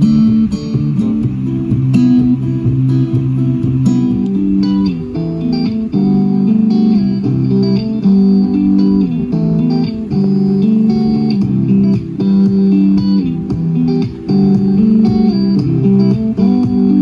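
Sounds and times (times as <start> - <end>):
guitar music through small speakers: 0.0 - 17.0.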